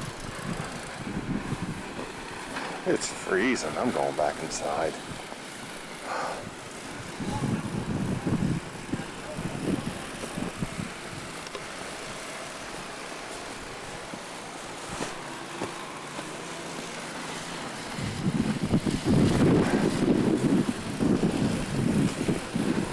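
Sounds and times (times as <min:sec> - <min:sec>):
wind gusts buffeting microphone: 0:00.0 - 0:02.0, 0:06.4 - 0:11.4, 0:18.0 - 0:22.9
wind hiss on microphone: 0:00.0 - 0:02.0, 0:06.0 - 0:12.3, 0:17.9 - 0:22.9.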